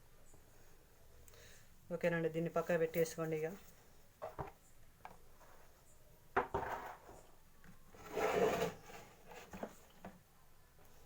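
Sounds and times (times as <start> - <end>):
scraping rubs: 7.9 - 10.0.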